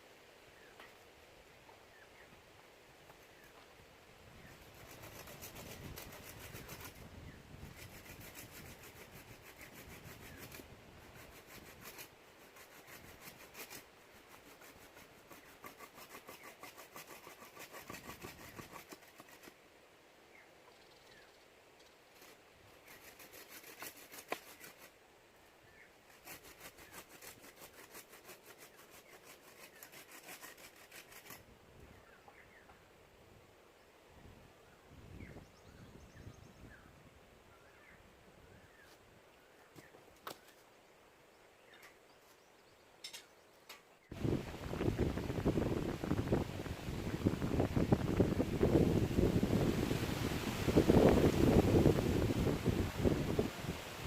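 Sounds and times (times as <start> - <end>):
hand tool working wood: 4.6 - 7.0, 7.7 - 19.6, 22.1 - 24.9, 26.1 - 31.4.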